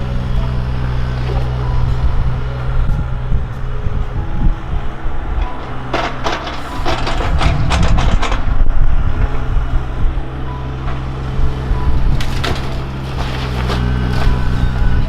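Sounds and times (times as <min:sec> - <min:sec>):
diesel engine running: 0:00.0 - 0:15.0
wood cracking and splintering: 0:10.2 - 0:15.0.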